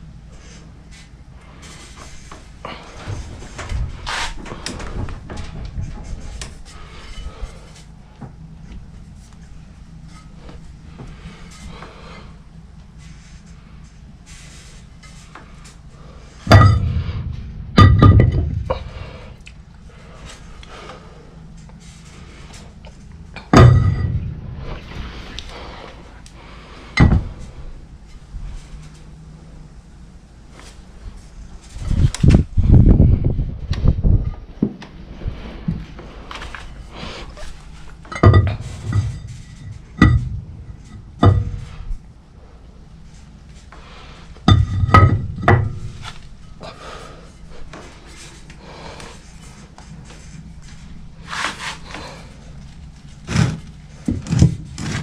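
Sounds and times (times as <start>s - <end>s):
steady low hum: 0.0s - 55.0s
metal-on-metal clanks: 16.4s - 19.3s, 23.4s - 25.8s, 37.3s - 43.3s, 44.4s - 46.8s
metal tools clanking: 23.4s - 25.5s, 36.4s - 42.1s.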